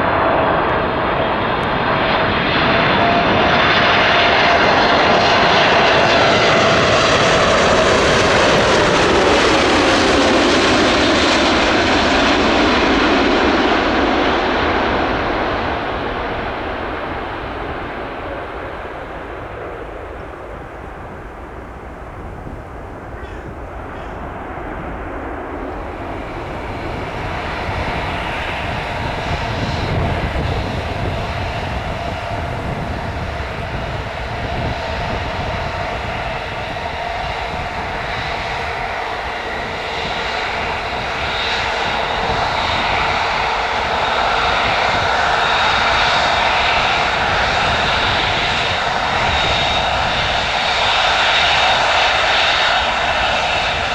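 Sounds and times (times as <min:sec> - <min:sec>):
jet engine whine and rumble: 0:00.0 - 0:53.9.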